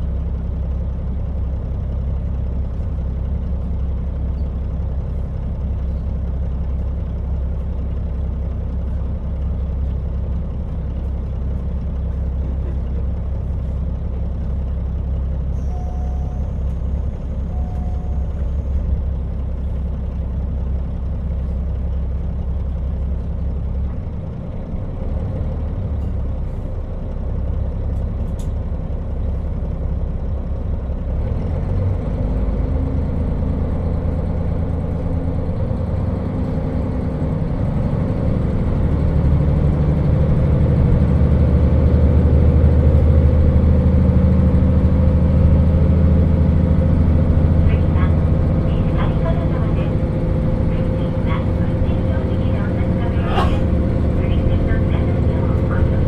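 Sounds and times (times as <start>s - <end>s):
diesel train engine drone: 0.0s - 56.0s
train running noise: 0.6s - 56.0s
short beeps: 15.6s - 16.6s, 17.5s - 18.4s.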